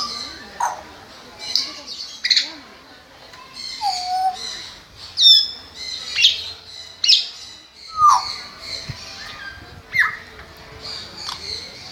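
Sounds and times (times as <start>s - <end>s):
parrot shrill calls: 3.6s - 6.4s.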